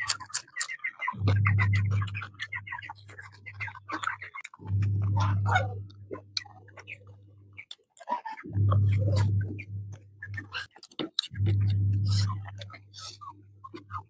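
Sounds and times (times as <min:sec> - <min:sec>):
chewing and lip-smacking: 0:00.0 - 0:01.0, 0:05.9 - 0:08.4, 0:10.0 - 0:13.9
low hum: 0:01.2 - 0:04.0, 0:04.6 - 0:07.6, 0:08.5 - 0:10.6, 0:11.3 - 0:14.0.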